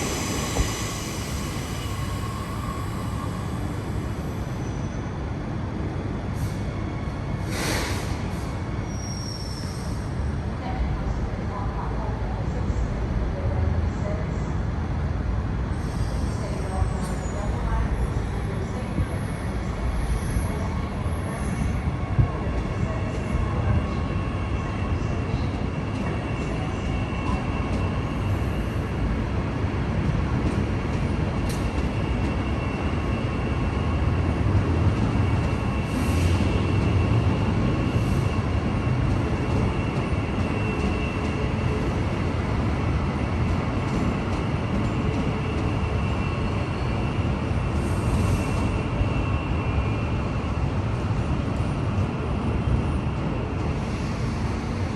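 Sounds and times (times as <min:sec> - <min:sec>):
electric train rumbling: 0:00.0 - 0:54.9
brief hisses: 0:07.4 - 0:08.2.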